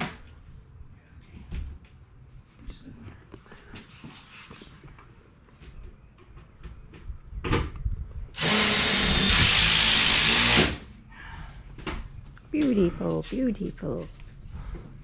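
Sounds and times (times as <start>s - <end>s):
power tool running: 8.4s - 10.9s.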